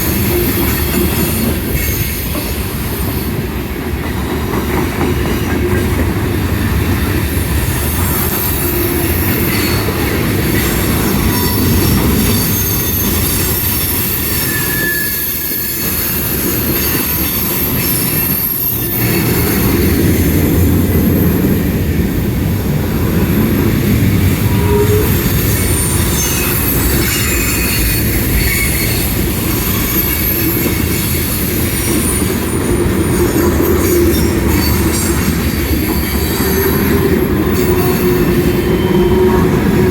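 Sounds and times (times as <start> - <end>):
freight train wheels rumbling: 0.0 - 39.9
high-pitched wheel squeals: 8.1 - 20.0, 23.3 - 39.9.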